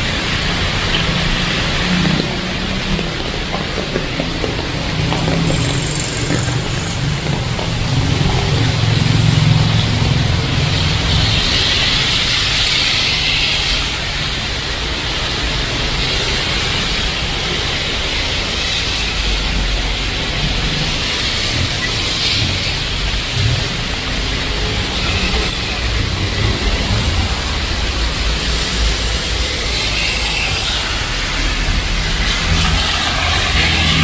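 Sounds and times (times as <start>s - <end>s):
heavy rain pouring: 0.0s - 34.0s
vehicle engine rumbling by: 0.3s - 12.2s.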